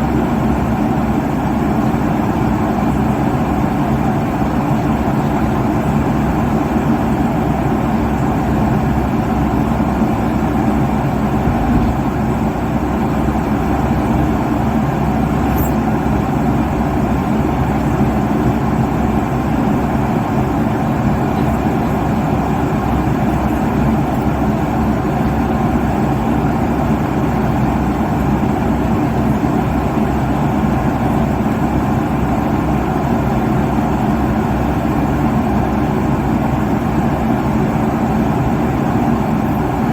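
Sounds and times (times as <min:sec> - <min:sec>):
airliner cabin engine roar: 0:00.0 - 0:39.9
low hum: 0:14.2 - 0:16.4.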